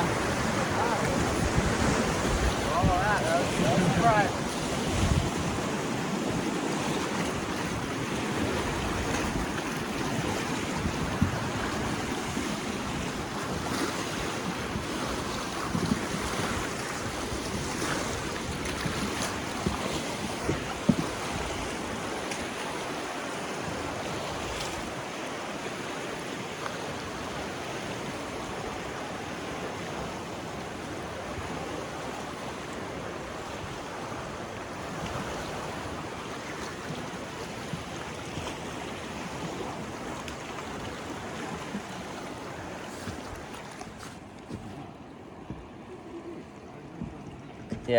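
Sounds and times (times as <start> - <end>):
wind on microphone: 0.0 - 22.2
water rushing and lapping: 0.0 - 47.9.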